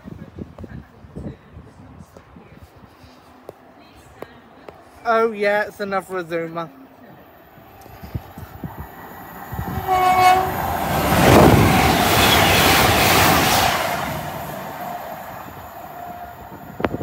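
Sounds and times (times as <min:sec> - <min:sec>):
train rushing past: 0:07.5 - 0:17.0
train horn blast: 0:09.7 - 0:16.6.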